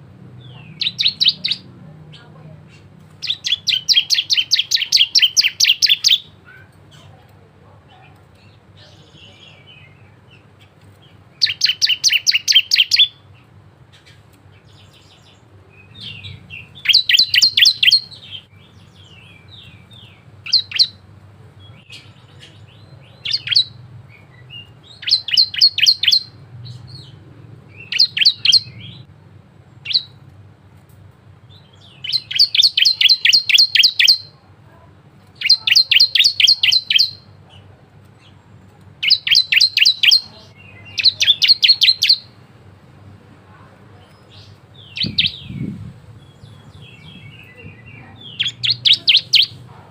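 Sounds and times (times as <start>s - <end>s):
bird rattling song: 2.8s - 6.3s, 10.6s - 13.2s, 15.9s - 21.0s, 24.6s - 26.9s, 31.7s - 34.3s, 35.4s - 37.2s, 39.0s - 40.3s, 40.9s - 42.3s, 44.8s - 49.7s.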